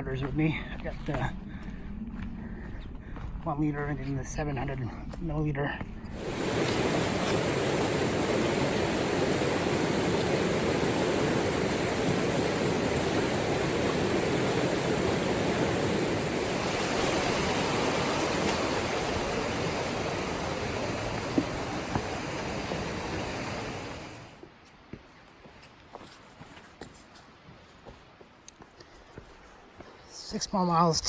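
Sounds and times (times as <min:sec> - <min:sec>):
stream rushing over rocks: 0:06.2 - 0:24.4.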